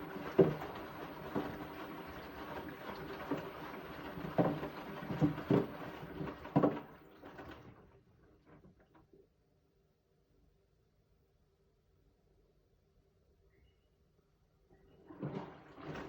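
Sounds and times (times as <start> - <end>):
washing machine drum sloshing: 0.0 - 8.8, 14.9 - 16.0.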